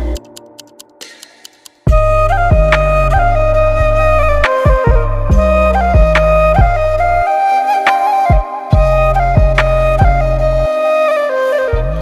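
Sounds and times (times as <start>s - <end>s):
deep bass notes: 1.9s - 7.2s, 8.8s - 10.7s
held melody line: 1.9s - 12.0s.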